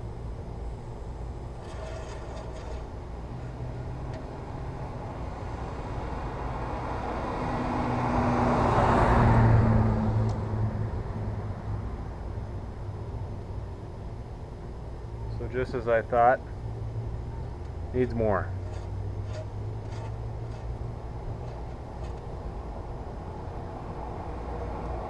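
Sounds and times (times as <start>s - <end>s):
vehicle passing by: 3.5s - 11.5s.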